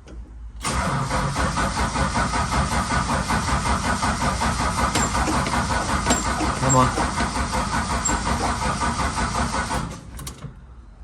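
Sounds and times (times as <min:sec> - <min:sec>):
car engine cranking on starter: 0:00.6 - 0:10.4.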